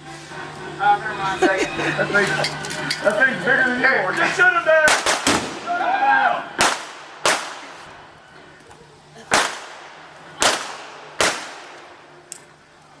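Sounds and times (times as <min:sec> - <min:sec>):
gunshots with echo: 0:04.9 - 0:05.7, 0:06.6 - 0:07.7, 0:09.3 - 0:11.9.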